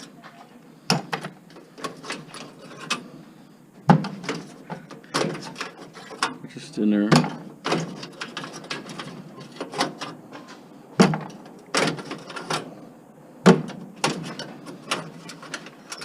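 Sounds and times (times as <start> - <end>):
metal clanks and rattles: 0.9 - 3.2, 3.8 - 6.5, 7.1 - 16.0
sharp knocks: 13.4 - 14.2.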